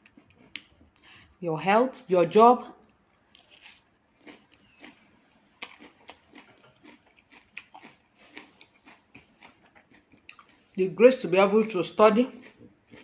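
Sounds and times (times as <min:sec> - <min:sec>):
person chewing crunchy salad: 0:00.0 - 0:01.4, 0:02.8 - 0:10.8, 0:12.2 - 0:13.0.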